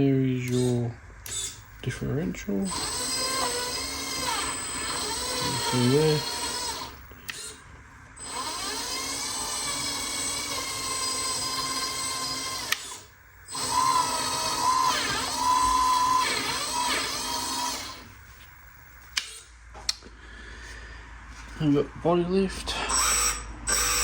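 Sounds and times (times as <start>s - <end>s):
small electric motor whine: 0.4s - 1.7s, 2.4s - 7.6s, 8.2s - 19.5s, 22.9s - 24.0s.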